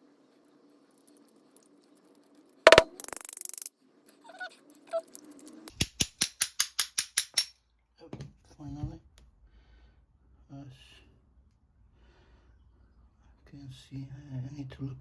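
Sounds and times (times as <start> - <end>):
sharp metallic knock: 2.7 - 3.2
evenly spaced tool clicks: 2.7 - 3.7, 5.7 - 7.5.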